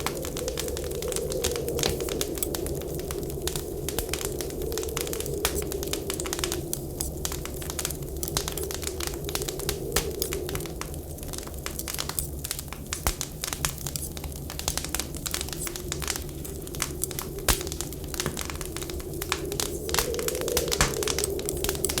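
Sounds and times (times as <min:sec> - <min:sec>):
wind whistling: 0:00.0 - 0:12.9, 0:13.9 - 0:22.0
wood fire crackling and popping: 0:00.0 - 0:22.0.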